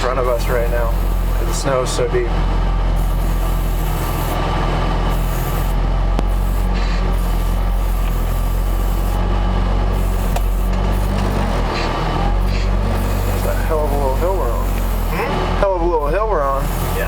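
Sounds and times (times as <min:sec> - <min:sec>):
snow vehicle engine under load: 0:00.0 - 0:17.0.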